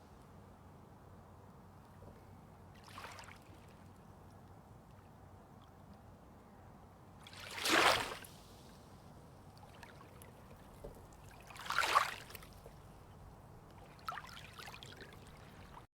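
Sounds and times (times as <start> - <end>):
small waves washing in: 2.8 - 3.8, 7.2 - 8.8, 9.6 - 13.0, 13.8 - 15.8.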